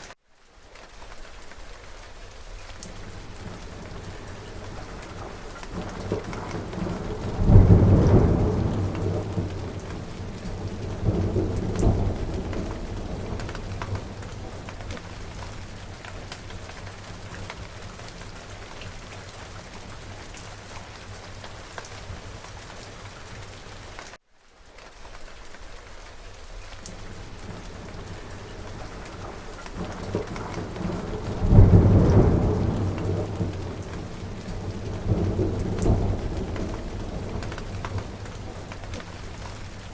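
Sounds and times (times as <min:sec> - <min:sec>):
heavy rain: 0:00.0 - 0:39.9
thunder rolling: 0:03.0 - 0:20.1, 0:27.0 - 0:39.9.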